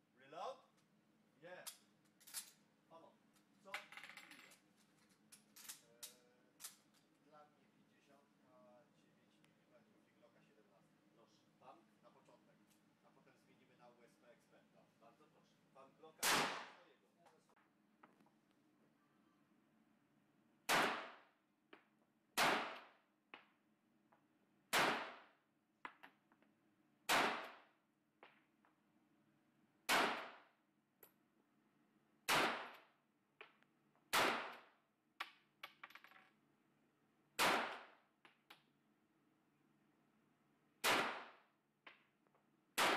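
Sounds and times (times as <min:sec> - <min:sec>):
gunshots: 0:16.2 - 0:16.8, 0:20.7 - 0:21.2, 0:22.4 - 0:22.9, 0:24.7 - 0:25.3, 0:27.1 - 0:27.7, 0:29.9 - 0:30.5, 0:32.3 - 0:32.8, 0:34.1 - 0:34.7, 0:37.4 - 0:38.0, 0:40.8 - 0:41.4.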